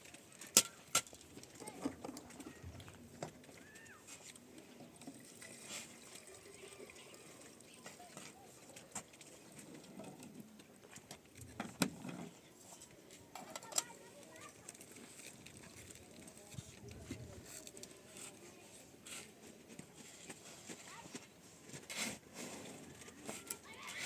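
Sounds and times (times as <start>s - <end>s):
faint distant voices: 0.0s - 24.0s
faint scattered clicks: 12.8s - 18.5s.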